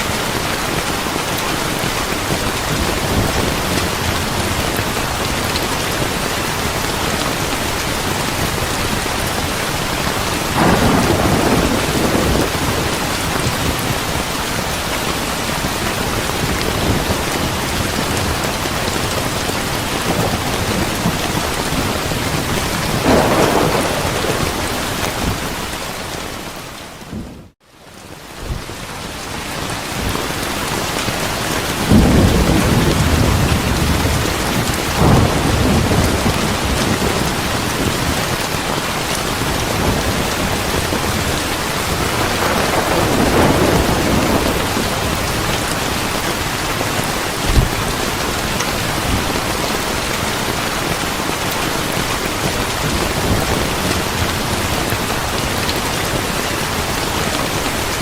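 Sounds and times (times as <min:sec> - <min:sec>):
steady rain falling: 0:00.0 - 0:58.0
thunder rumbling: 0:01.5 - 0:27.6, 0:31.7 - 0:57.9
sharp thunder clap: 0:10.5 - 0:13.9, 0:22.4 - 0:25.7, 0:31.9 - 0:37.8, 0:41.9 - 0:45.6.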